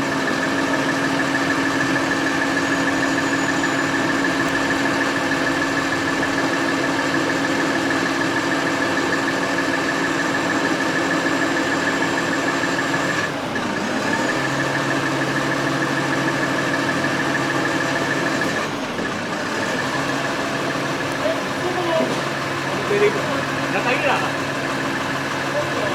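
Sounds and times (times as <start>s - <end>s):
constant high whine: 0.0s - 13.2s
vehicle engine running: 0.0s - 25.9s.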